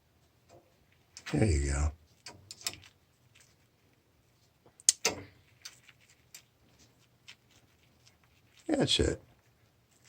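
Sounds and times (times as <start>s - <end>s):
small metal parts clicking: 2.2s - 3.5s.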